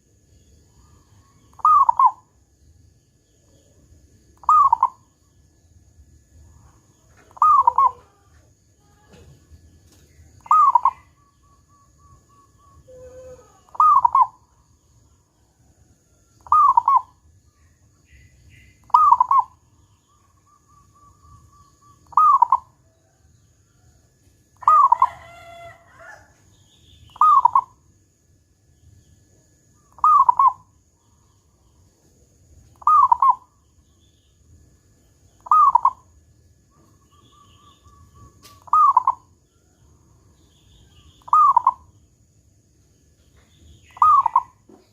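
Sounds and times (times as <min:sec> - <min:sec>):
dove cooing: 0:01.5 - 0:02.2, 0:04.4 - 0:05.0, 0:07.2 - 0:09.4, 0:10.4 - 0:14.5, 0:16.4 - 0:17.2, 0:18.8 - 0:19.6, 0:20.4 - 0:23.2, 0:24.6 - 0:26.2, 0:27.1 - 0:27.8, 0:29.9 - 0:30.6, 0:32.8 - 0:33.6, 0:35.4 - 0:36.0, 0:36.7 - 0:39.3, 0:41.2 - 0:41.9, 0:43.9 - 0:44.8.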